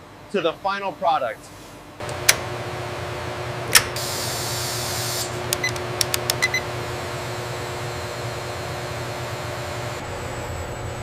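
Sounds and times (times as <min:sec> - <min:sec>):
machinery hum: 0:00.0 - 0:11.0
sharp click: 0:03.7 - 0:03.9.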